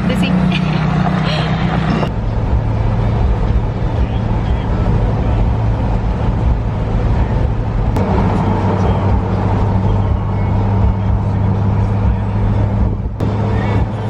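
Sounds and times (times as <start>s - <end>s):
road and engine noise in car: 0.0s - 14.0s.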